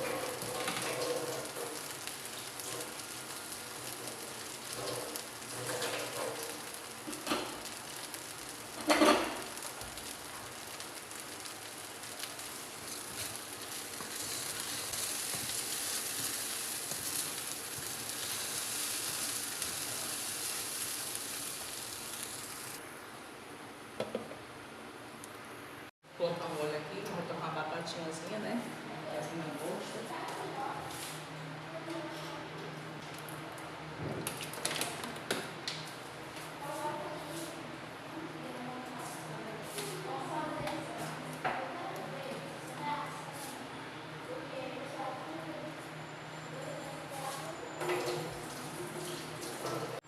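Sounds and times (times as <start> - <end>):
food sizzling in hot oil: 0.0 - 22.8.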